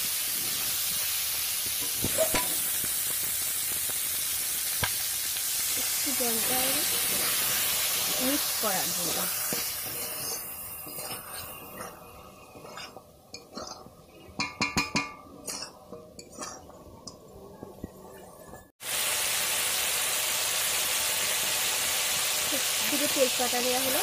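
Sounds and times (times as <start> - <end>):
chicken sizzling in a wok: 0.0 - 15.2, 18.8 - 24.0
metal spatula scraping a pan: 6.1 - 16.7.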